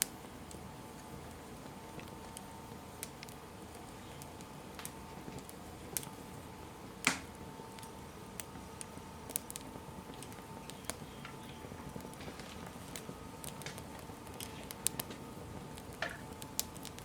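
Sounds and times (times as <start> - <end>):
fire crackling: 0.0 - 17.0
sharp pops from fire: 0.0 - 17.0.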